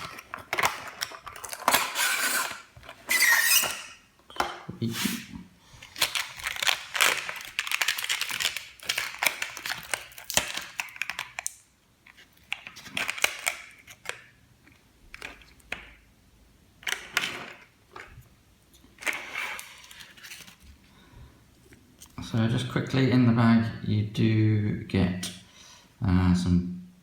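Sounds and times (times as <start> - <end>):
plastic packaging rustling: 0.0 - 4.0, 5.8 - 14.3, 18.9 - 20.9.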